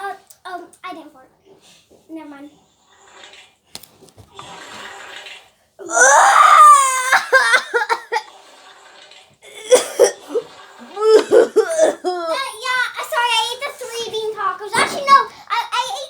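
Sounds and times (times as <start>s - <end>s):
child squealing: 5.8s - 8.3s, 11.0s - 12.8s
child giggling: 6.8s - 8.3s, 9.5s - 12.7s.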